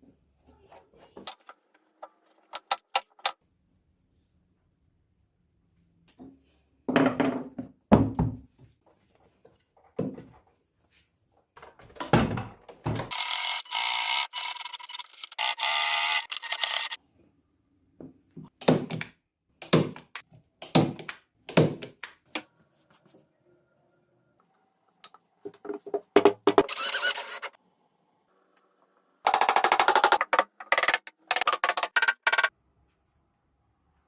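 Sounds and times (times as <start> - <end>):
workshop knocks and thunks: 6.9 - 8.6
noisy tool sound: 13.1 - 17.0, 26.6 - 27.6.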